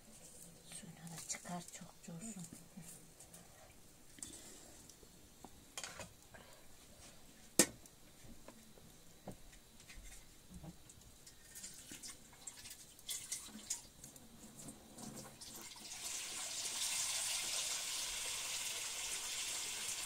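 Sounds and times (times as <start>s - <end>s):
water running into a pot: 11.2s - 20.0s.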